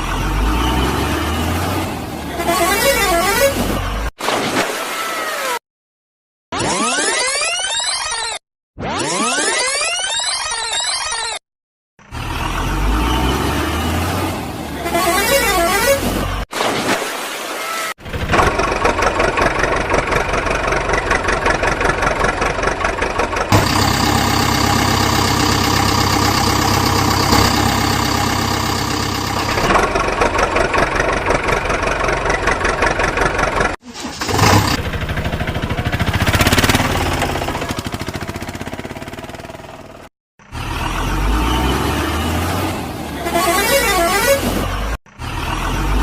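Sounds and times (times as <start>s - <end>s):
engine starting and chugging: 18.0s - 42.6s.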